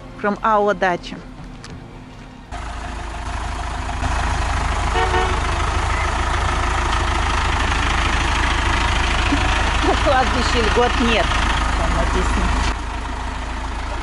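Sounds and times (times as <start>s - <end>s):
traffic rumble: 0.0s - 14.0s
short horn toot: 4.9s - 5.4s.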